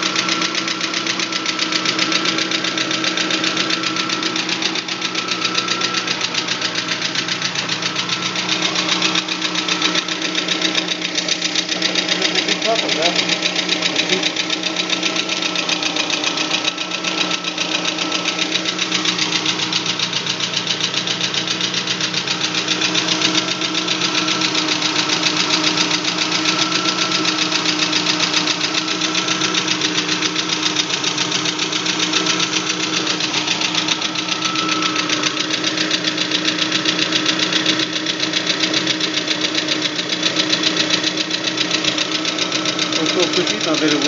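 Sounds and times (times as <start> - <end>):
car engine idling with knock: 0.0 - 44.0.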